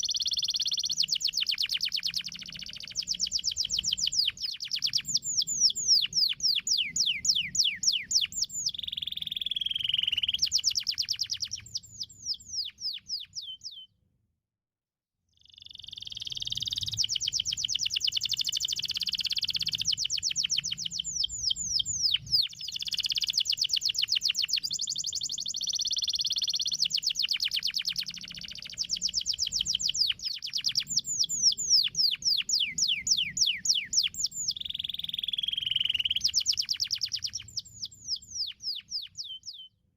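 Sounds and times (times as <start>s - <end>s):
canary singing trills: 0.0s - 13.9s, 15.4s - 39.9s.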